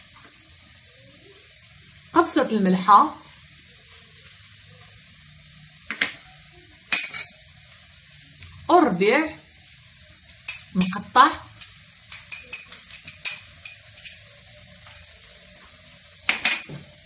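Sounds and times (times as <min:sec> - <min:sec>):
food sizzling in a pan: 0:00.0 - 0:17.0
kitchenware clicks: 0:11.6 - 0:15.1, 0:16.3 - 0:16.8.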